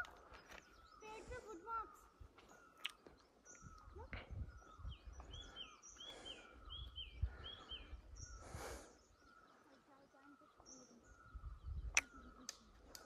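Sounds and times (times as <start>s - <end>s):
footsteps on dirt trail: 0.0s - 3.2s
birds chirping: 0.0s - 13.0s.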